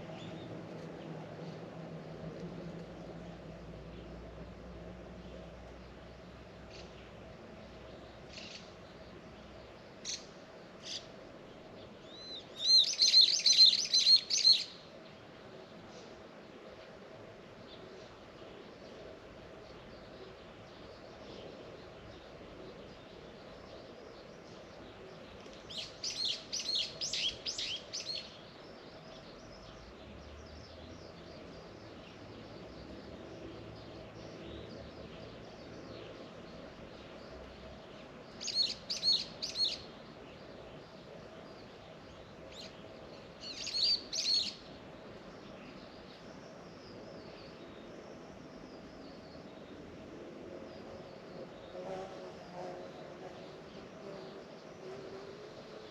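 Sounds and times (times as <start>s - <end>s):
songbird singing: 0.0s - 55.9s
faint bird chirps: 11.8s - 14.9s, 19.7s - 50.0s.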